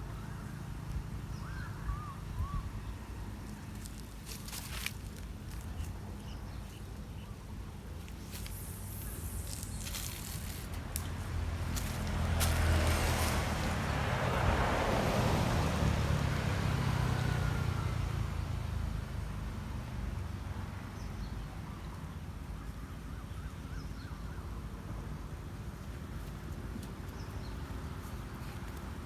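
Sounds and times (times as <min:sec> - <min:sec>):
faint chirps: 0:08.0 - 0:10.7
vehicle passing by: 0:08.3 - 0:19.0.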